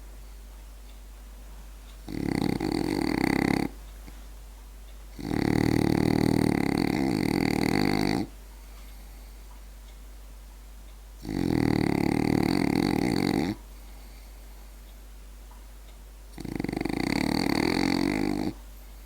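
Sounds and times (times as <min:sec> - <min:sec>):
dog snoring: 0:02.0 - 0:03.8, 0:05.2 - 0:08.4, 0:11.2 - 0:13.7, 0:16.3 - 0:18.6.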